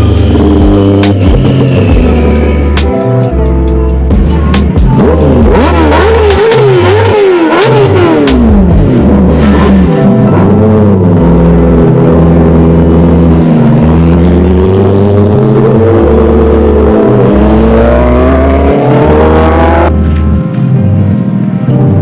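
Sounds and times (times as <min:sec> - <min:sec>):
background music with heavy bass: 0:00.0 - 0:22.0
motorcycle engine running: 0:00.0 - 0:22.0.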